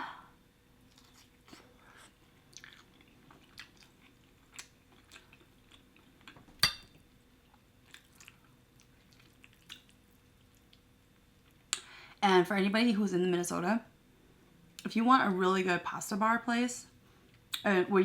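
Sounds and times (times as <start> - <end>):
chewing with wet mouth clicks: 0.9 - 6.4, 7.5 - 11.8.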